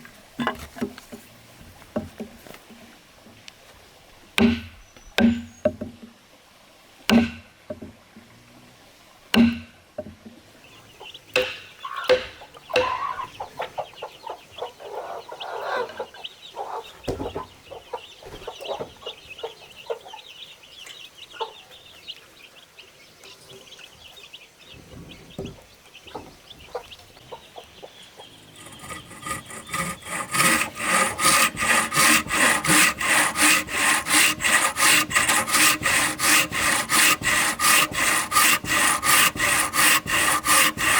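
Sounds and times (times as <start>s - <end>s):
sharp knocks on wood: 4.4s - 6.0s, 7.1s - 7.9s, 9.4s - 10.2s, 11.4s - 12.9s
hens clucking: 11.0s - 20.2s
hand tool rubbing on wood: 28.6s - 40.9s.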